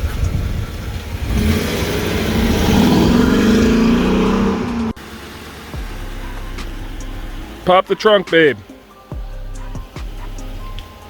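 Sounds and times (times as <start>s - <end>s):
car engine revving: 0.0s - 10.9s.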